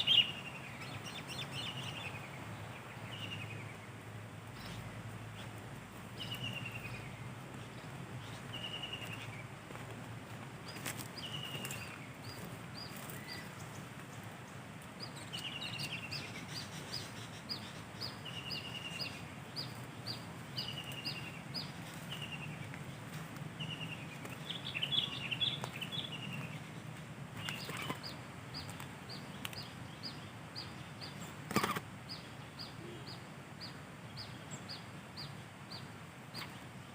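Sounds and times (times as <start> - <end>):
small birds calling: 0.0 - 36.9
chattering bird trills: 27.4 - 28.2, 31.5 - 31.8.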